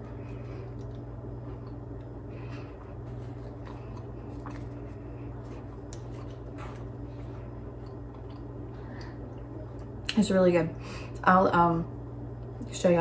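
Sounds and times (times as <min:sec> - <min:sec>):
steady low hum: 0:00.0 - 0:13.0
soft chewing and mouth clicks: 0:00.1 - 0:10.2.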